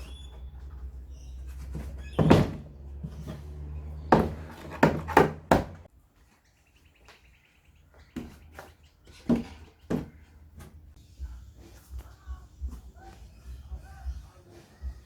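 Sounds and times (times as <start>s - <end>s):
sharp knocks and thuds: 1.6s - 5.9s.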